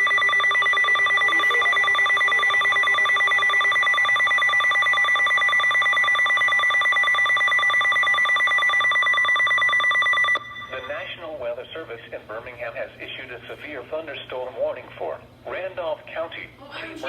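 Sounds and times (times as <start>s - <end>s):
rapid pulsing alert beep: 0.0s - 11.2s.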